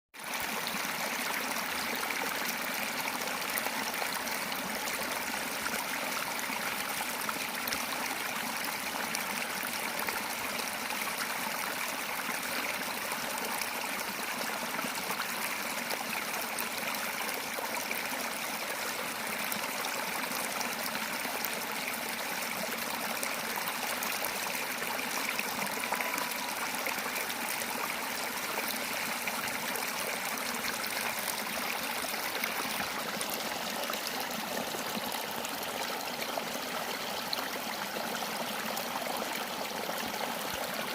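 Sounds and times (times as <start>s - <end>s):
stream water rushing: 19.0s - 40.9s.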